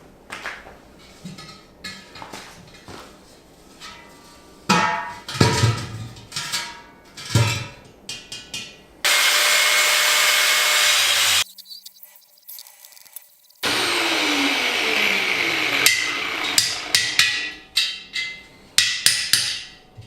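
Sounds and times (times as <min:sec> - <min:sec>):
power tool running: 0:09.1 - 0:11.6, 0:13.6 - 0:17.6
sharp metallic knocks: 0:15.9 - 0:19.8.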